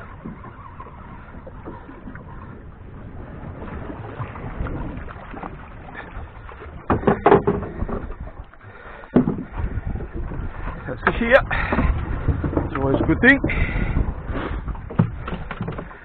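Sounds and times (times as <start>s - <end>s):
water around boat: 0.0s - 16.0s
wind: 0.0s - 16.0s
loud knocks and rattles: 6.9s - 8.0s, 11.1s - 13.7s, 14.7s - 16.0s.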